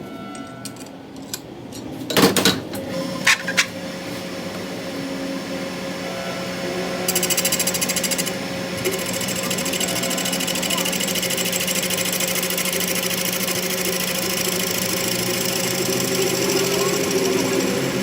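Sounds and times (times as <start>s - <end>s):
machine motor humming: 3.8s - 18.0s
fast rattling buzz: 7.1s - 18.0s.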